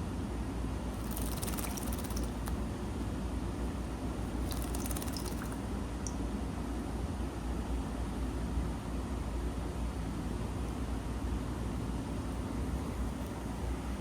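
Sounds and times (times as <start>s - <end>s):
steady low hum: 0.0s - 14.0s
bird wings flapping: 1.0s - 2.6s, 4.4s - 5.6s.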